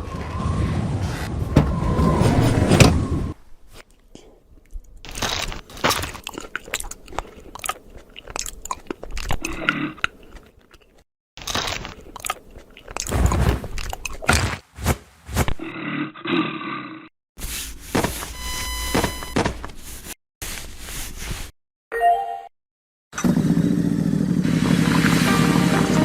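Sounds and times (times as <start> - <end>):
crunching and crackling: 4.6 - 14.4.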